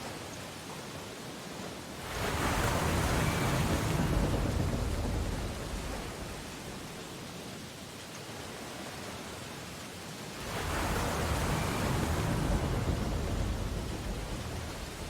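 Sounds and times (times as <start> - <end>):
ocean surf on beach: 0.0 - 15.0
wave breaking: 2.0 - 7.0, 10.4 - 15.0.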